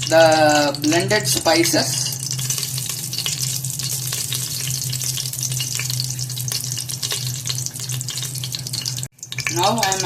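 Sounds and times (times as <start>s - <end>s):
spices sizzling in hot ghee: 0.0s - 10.0s.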